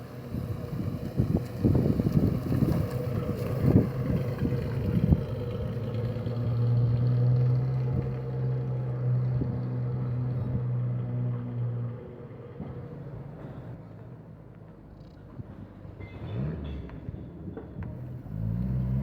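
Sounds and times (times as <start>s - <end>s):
vehicle engine idling: 0.0s - 8.8s.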